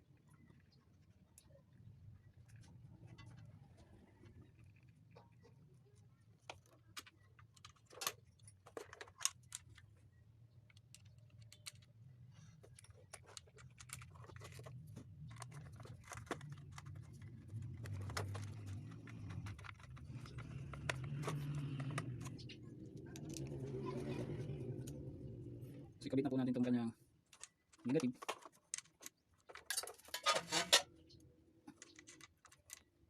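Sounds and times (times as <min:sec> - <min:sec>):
hand tools clicking and tapping: 0:12.6 - 0:22.6
low hum: 0:16.0 - 0:26.2.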